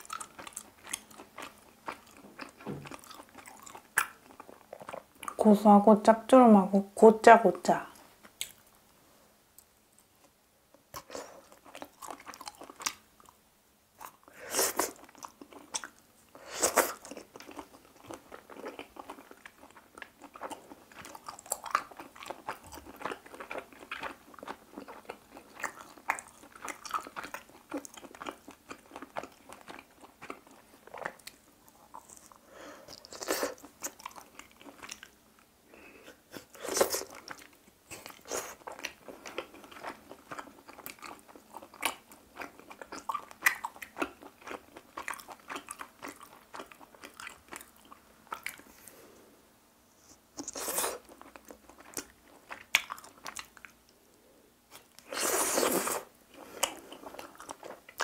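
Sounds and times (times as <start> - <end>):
chewing and biting: 0.0 - 5.4, 11.0 - 13.4, 16.7 - 35.2, 36.4 - 48.7, 50.4 - 53.8.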